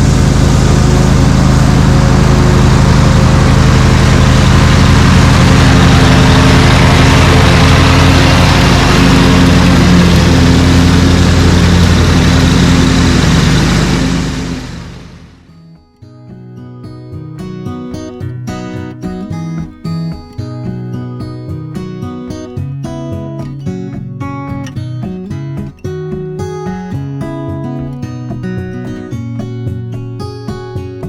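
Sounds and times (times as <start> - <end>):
combustion engine running loudly: 0.0 - 15.5.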